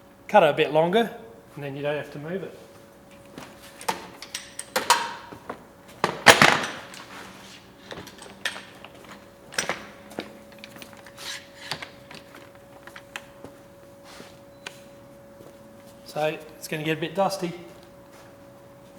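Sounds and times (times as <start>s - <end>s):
tools clattering on workbench: 3.8s - 5.3s, 6.0s - 13.2s.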